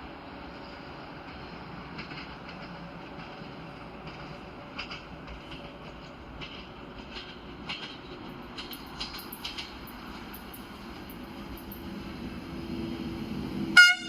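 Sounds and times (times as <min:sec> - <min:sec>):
train running on track: 0:00.0 - 0:14.0
sharp rail clicks: 0:01.3 - 0:12.3.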